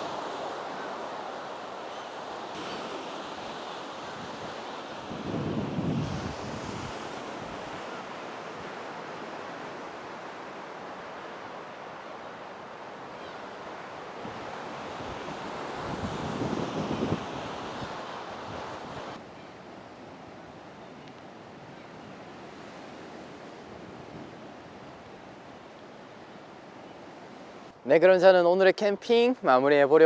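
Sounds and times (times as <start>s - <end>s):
sea surf washing ashore: 0.0s - 29.8s
wind buffeting microphone: 2.6s - 10.3s, 13.3s - 19.2s.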